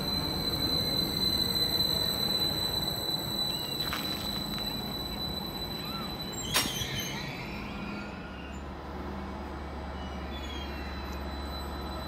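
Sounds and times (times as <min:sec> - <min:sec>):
faint short squeals: 0:00.0 - 0:08.7
train running noise: 0:00.0 - 0:12.0.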